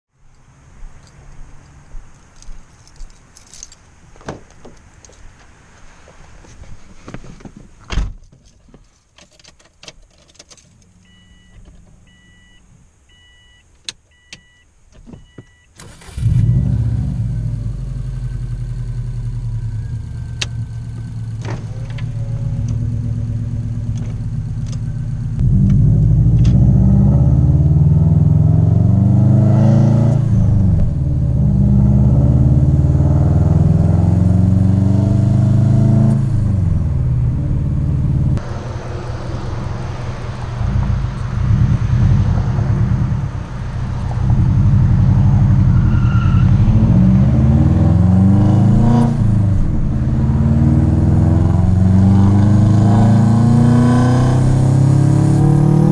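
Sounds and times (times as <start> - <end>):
car warning chime beeps: 11.0 - 15.8
car engine starting and accelerating: 15.8 - 55.9.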